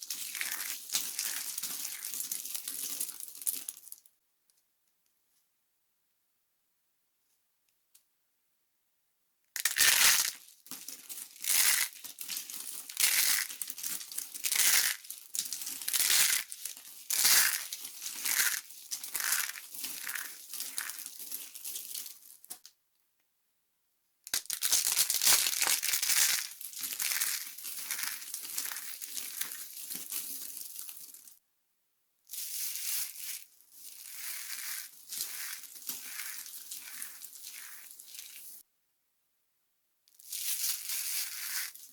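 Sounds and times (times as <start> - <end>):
dry soap crunching: 0.0 - 3.9, 9.6 - 22.2, 24.4 - 31.3, 32.4 - 38.6.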